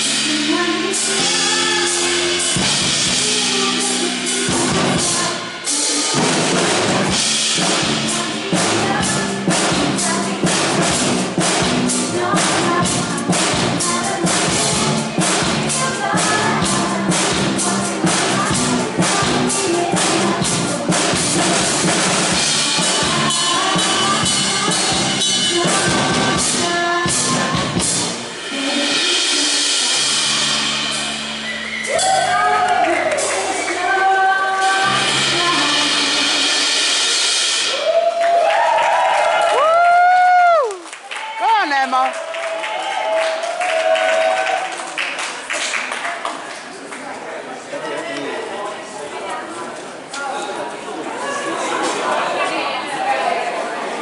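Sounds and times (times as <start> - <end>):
band playing pop song: 0.0 - 38.0
drum kit beat: 0.0 - 38.6.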